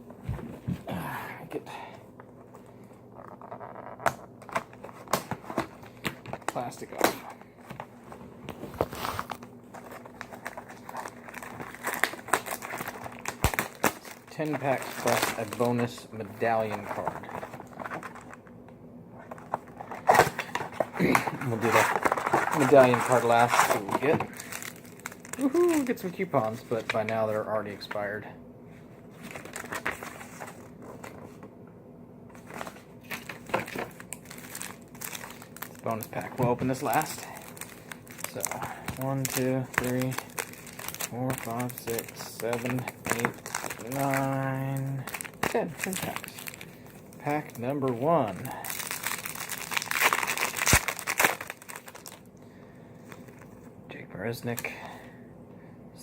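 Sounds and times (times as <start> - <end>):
plastic shrink wrap crinkling: 8.5 - 18.5, 19.2 - 28.2, 29.2 - 31.4, 32.4 - 52.3, 53.0 - 53.7.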